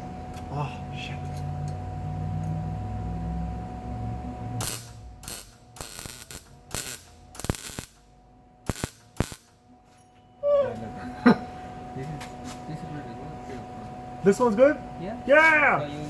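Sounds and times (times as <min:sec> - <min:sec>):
welding arc crackling: 0:04.6 - 0:09.6.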